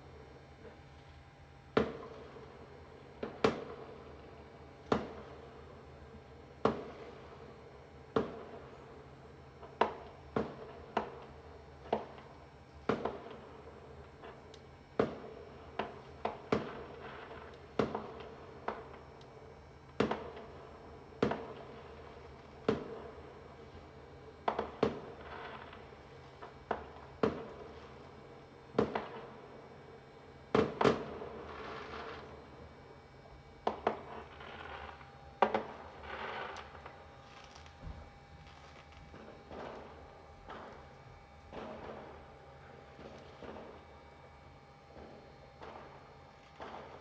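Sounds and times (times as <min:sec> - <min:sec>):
fireworks crackle: 0:21.2 - 0:28.2, 0:30.6 - 0:47.0
fireworks bangs: 0:30.5 - 0:32.7, 0:33.6 - 0:40.9, 0:41.5 - 0:43.9, 0:45.0 - 0:47.0.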